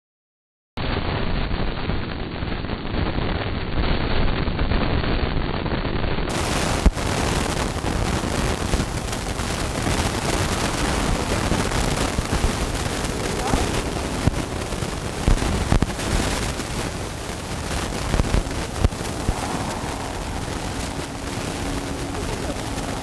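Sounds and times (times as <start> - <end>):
heavy rain: 0.8 - 23.0
wind buffeting microphone: 6.3 - 23.0.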